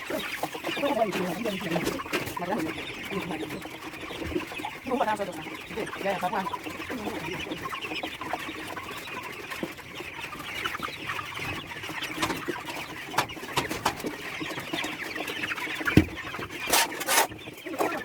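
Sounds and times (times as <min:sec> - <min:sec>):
chickens clucking: 0:00.0 - 0:18.0
cleaning knocks and scrapes: 0:15.9 - 0:17.5.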